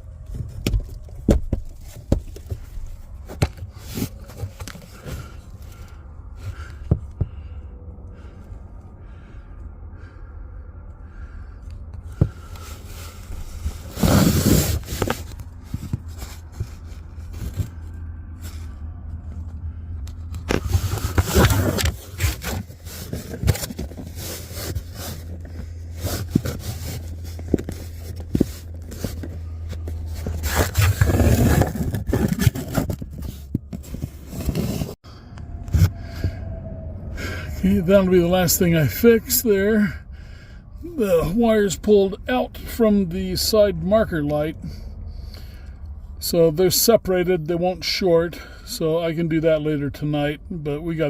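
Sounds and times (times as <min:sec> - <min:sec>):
steady low hum: 0:00.0 - 0:51.0
scraping and clicking handling: 0:00.1 - 0:07.3, 0:12.0 - 0:35.0.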